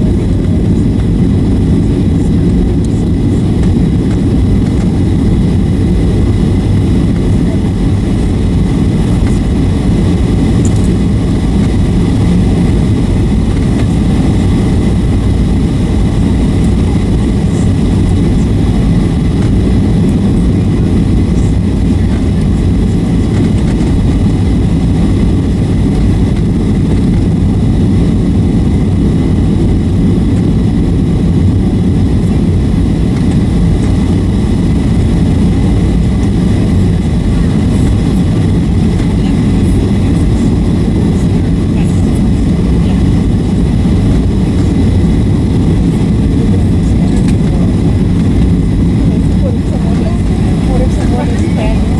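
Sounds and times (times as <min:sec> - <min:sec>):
airplane cabin engine noise: 0:00.0 - 0:51.9.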